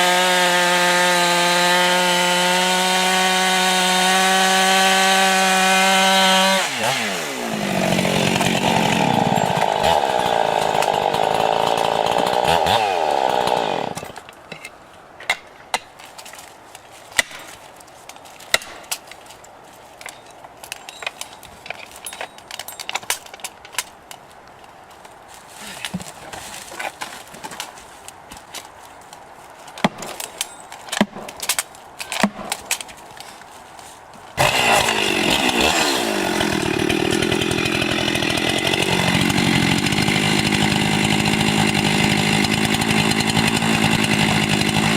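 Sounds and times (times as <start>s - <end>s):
chainsaw cutting wood: 0.0s - 14.3s, 34.4s - 44.9s.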